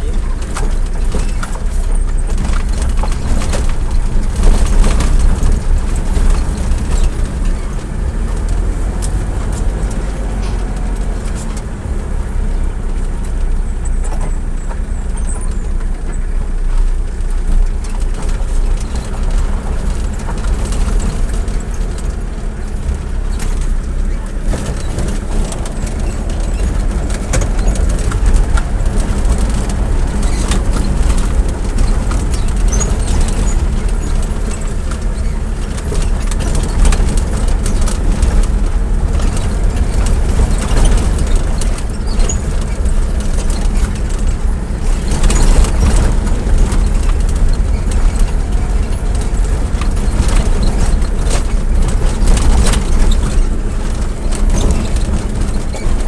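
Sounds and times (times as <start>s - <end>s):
engine and road rumble: 0.0s - 56.0s
small rattles and clicks: 0.0s - 56.0s
wind buffeting microphone: 18.8s - 56.0s.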